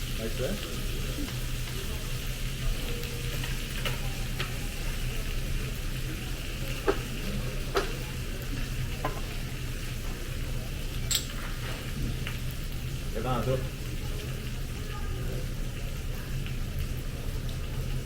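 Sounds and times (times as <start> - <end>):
meat sizzling on a grill: 0.0 - 18.0
utensils clicking against grill: 11.0 - 11.5.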